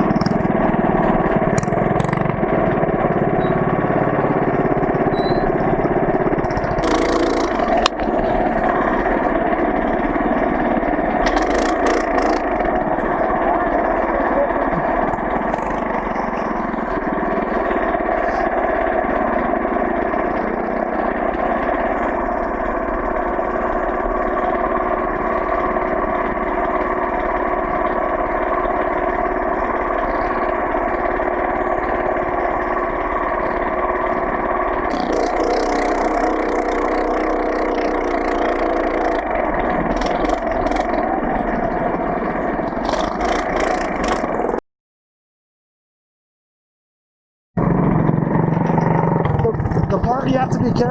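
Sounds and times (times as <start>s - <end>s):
minibike engine running: 0.0s - 44.6s, 47.6s - 50.9s.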